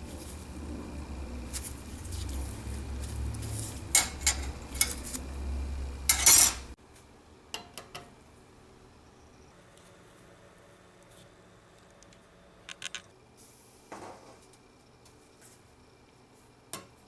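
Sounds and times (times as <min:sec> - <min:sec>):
low steady hum: 0:00.0 - 0:17.0
metal parts clinking: 0:06.1 - 0:06.6.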